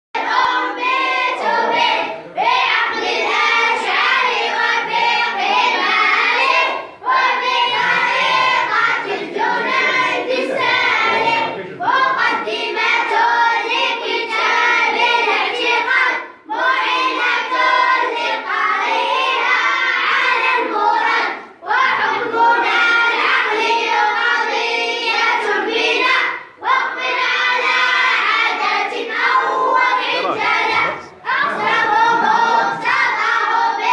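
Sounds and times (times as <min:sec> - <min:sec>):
children singing in unison: 0:00.2 - 0:33.9.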